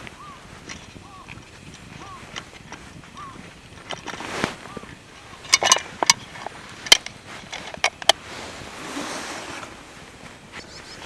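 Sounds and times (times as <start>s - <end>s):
short rustling: 0.0s - 11.0s
sharp clicks and knocks: 0.6s - 8.2s.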